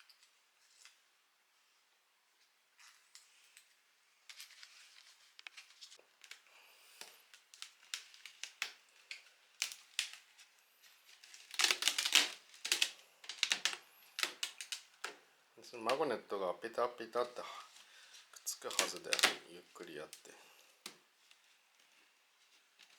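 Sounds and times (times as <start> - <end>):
packaging crinkling: 4.3 - 16.2, 17.0 - 22.9.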